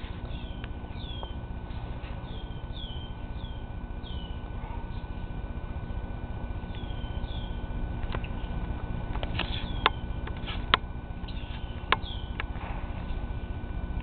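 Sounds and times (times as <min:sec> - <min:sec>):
low background rumble: 0:00.0 - 0:14.0
small bird chirping: 0:00.2 - 0:01.4, 0:02.1 - 0:05.1, 0:06.7 - 0:07.7, 0:09.4 - 0:10.2, 0:11.2 - 0:12.4.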